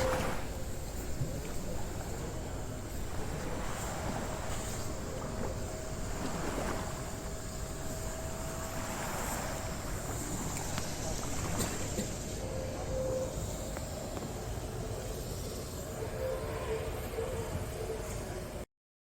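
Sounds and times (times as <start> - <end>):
wind buffeting microphone: 0.0 - 13.0
water rushing along hull: 0.0 - 18.6.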